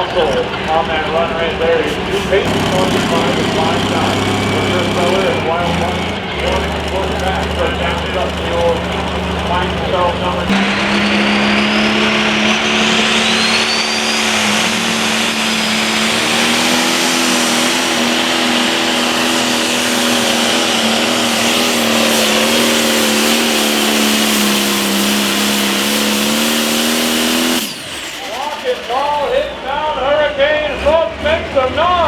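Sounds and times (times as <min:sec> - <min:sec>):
tractor engine running hard: 0:00.0 - 0:32.0
turbo whistle: 0:10.6 - 0:29.7.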